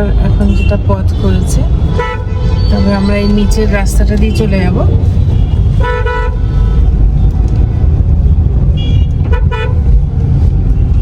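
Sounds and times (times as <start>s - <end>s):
vehicle horns tooting: 0.0s - 4.6s, 5.2s - 6.9s, 8.7s - 9.8s
car driving road rumble: 0.0s - 11.0s.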